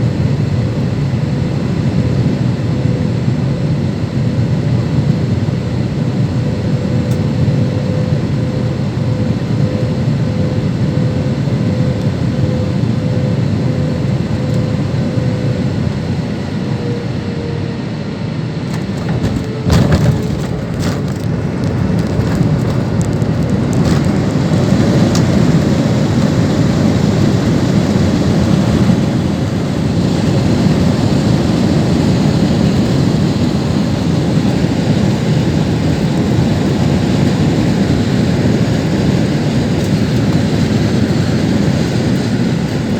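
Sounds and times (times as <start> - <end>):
airplane cabin rumble: 0.0 - 42.9
sharp thump and rattle: 18.7 - 25.4.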